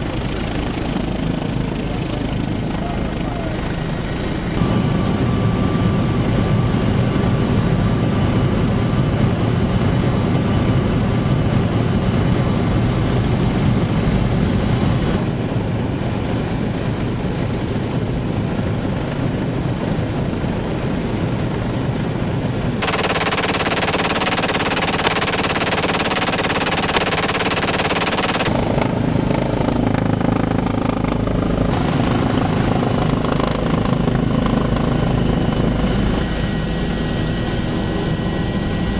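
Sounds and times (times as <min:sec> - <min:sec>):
helicopter turbine and rotor: 0:00.0 - 0:38.9.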